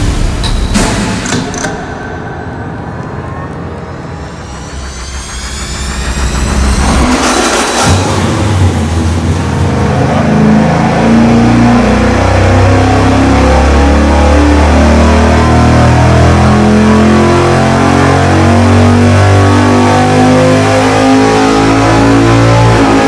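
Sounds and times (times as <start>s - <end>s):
engine at full throttle: 1.5s - 23.0s.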